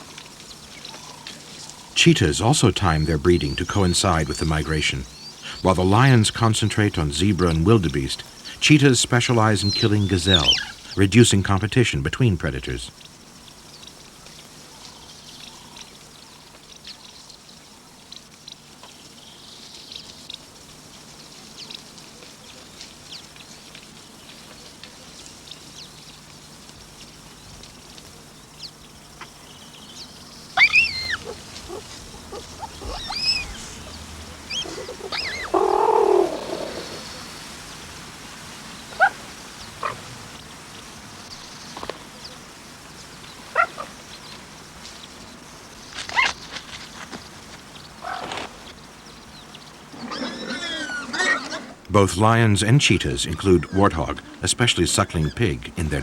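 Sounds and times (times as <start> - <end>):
sharp falling animal calls: 0.8 - 12.9, 30.3 - 37.5, 49.8 - 56.0
faint high chirps: 29.5 - 37.3.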